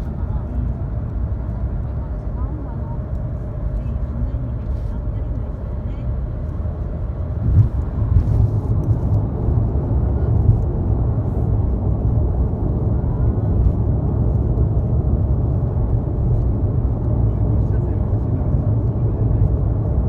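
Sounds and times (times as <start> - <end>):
car road and engine noise: 0.0 - 20.0.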